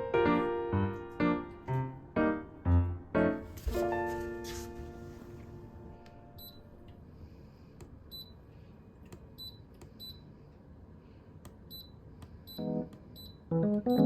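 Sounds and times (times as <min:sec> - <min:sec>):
piano chord: 0:00.0 - 0:06.4, 0:12.6 - 0:14.0.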